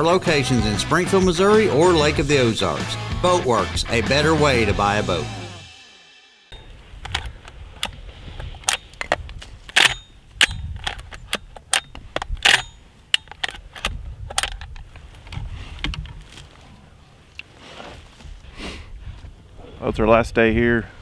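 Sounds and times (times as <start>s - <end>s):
sharp clicks and knocks: 7.0s - 16.2s.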